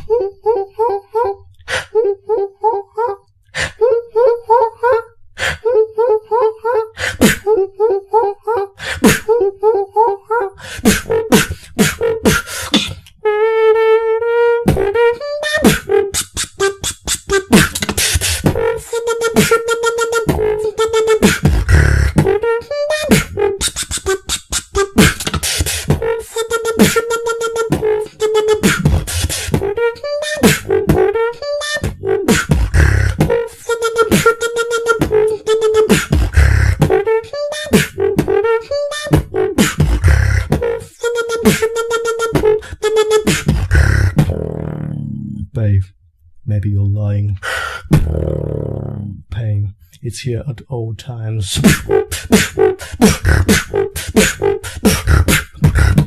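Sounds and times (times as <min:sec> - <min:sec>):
beatboxing drum clicks and snares: 0:09.0 - 0:09.3, 0:10.8 - 0:13.2, 0:14.7 - 0:45.0, 0:47.9 - 0:48.9, 0:51.6 - 0:56.0
held pitched vocal tone: 0:14.6 - 0:56.0
beatboxed deep bass kicks: 0:14.7 - 0:15.0, 0:15.6 - 0:22.5, 0:23.1 - 0:31.2, 0:31.8 - 0:37.1, 0:37.7 - 0:38.5, 0:39.1 - 0:45.0, 0:47.9 - 0:49.0, 0:50.3 - 0:56.0.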